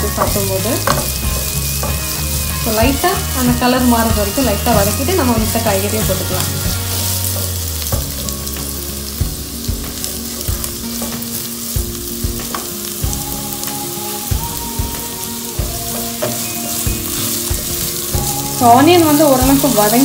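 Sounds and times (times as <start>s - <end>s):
spatula scraping and knocking pan: 0.0s - 12.9s
vegetables sizzling in hot oil: 0.0s - 20.0s.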